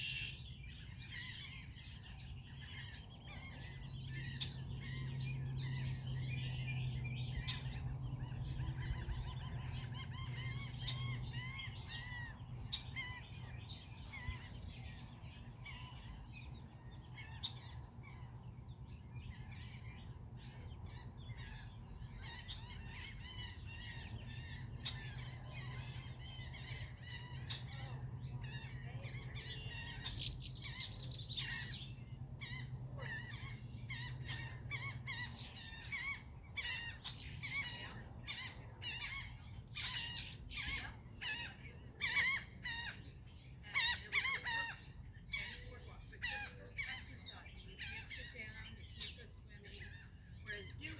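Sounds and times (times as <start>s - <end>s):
flock of birds chirping: 0.0s - 50.9s
steady low hum: 0.0s - 50.9s.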